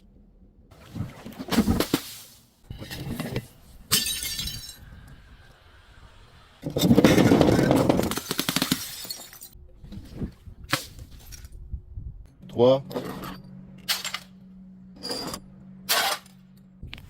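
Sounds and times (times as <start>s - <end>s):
glass bottle breaking: 3.9s - 4.8s, 6.8s - 9.6s.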